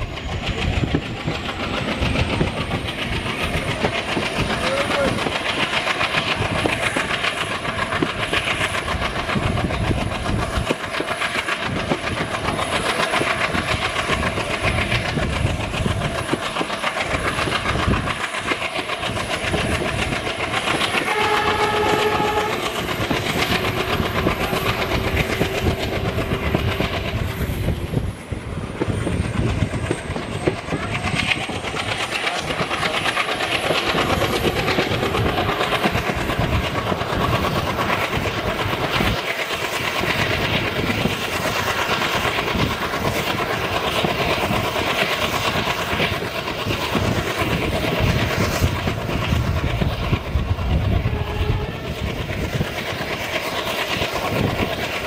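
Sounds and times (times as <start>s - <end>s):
diesel locomotive chugging: 0.0s - 55.0s
train wheels clattering over rails: 0.0s - 55.0s
locomotive horn blast: 21.1s - 22.7s, 51.1s - 51.8s.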